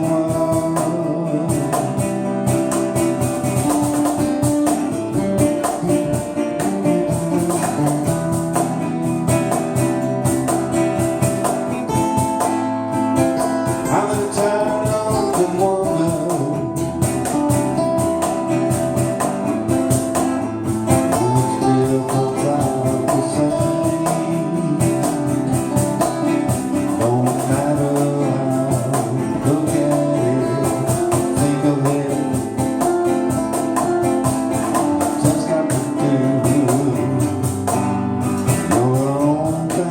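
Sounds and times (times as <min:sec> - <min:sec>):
band playing: 0:00.0 - 0:39.9
guitar: 0:00.0 - 0:39.9.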